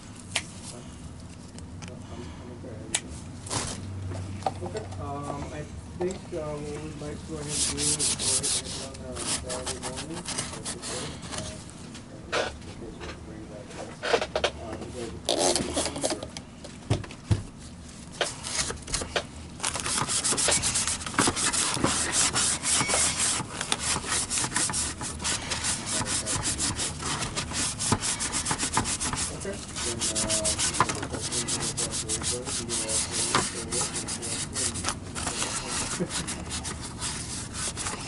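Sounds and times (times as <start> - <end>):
hand rubbing and scraping: 6.3 - 11.7, 17.6 - 38.0.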